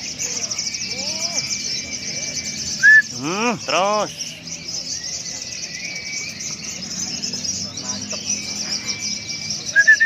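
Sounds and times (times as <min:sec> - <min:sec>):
songbird twittering song: 0:00.0 - 0:10.0
thin held whistle: 0:09.7 - 0:10.0.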